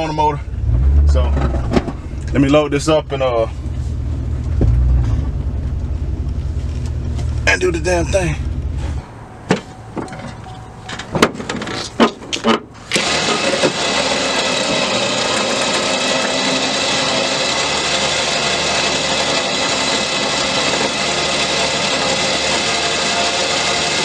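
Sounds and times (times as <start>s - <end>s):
electric winch motor whining: 8.8s - 24.0s.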